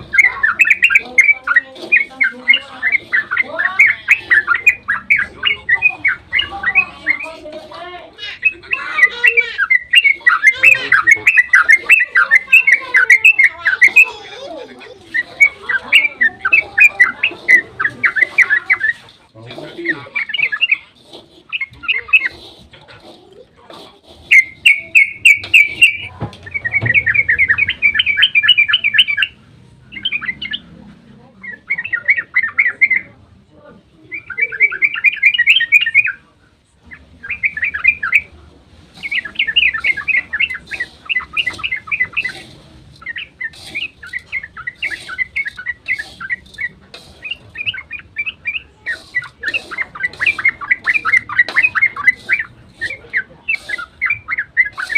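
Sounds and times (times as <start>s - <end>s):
bird singing rapid trills: 0.0s - 22.6s, 24.2s - 30.8s, 31.4s - 33.1s, 34.0s - 36.3s, 36.9s - 38.4s, 39.0s - 54.9s.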